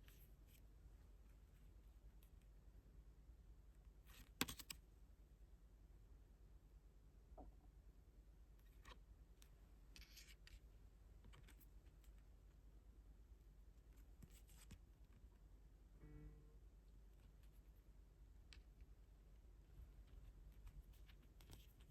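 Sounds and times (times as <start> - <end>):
paper rustle: 20.0 - 21.9.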